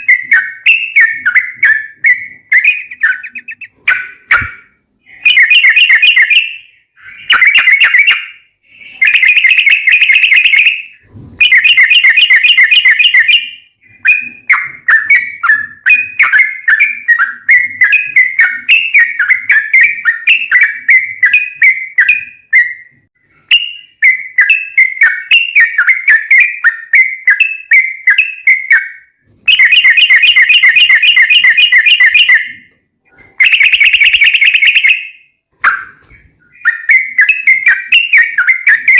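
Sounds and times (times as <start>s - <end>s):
bulbul singing rolling trills: 0.0s - 32.6s, 33.4s - 38.9s
bird chattering phrases: 2.6s - 4.6s.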